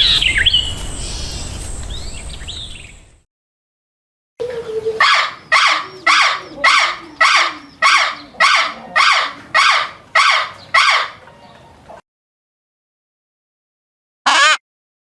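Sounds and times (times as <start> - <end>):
bird harsh raspy calls: 4.9 - 11.8.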